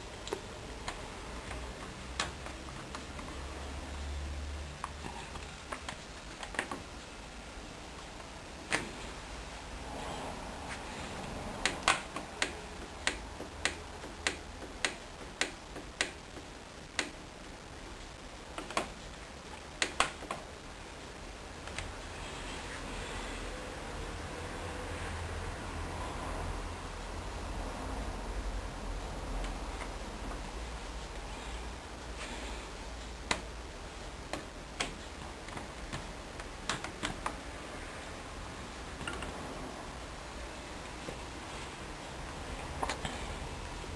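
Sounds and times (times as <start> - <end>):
washing machine controls clicking: 4.8 - 6.9, 11.6 - 17.2, 34.3 - 37.4.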